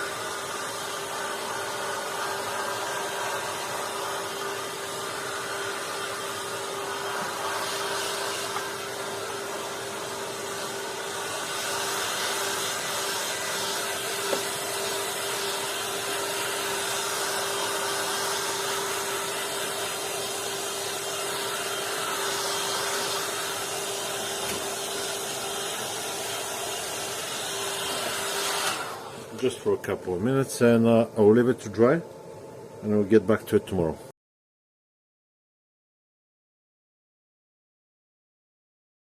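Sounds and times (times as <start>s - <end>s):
heat gun blowing: 0.0s - 29.4s.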